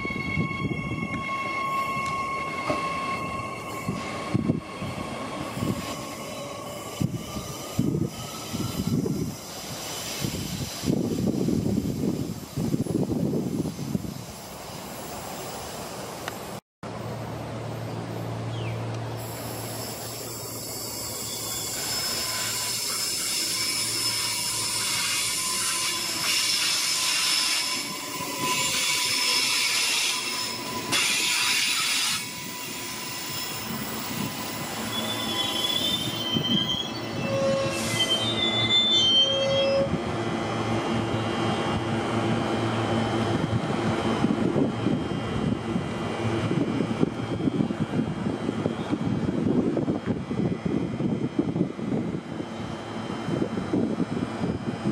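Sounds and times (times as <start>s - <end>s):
train rumble: 0.0s - 54.9s
wheel squeals: 19.2s - 40.0s.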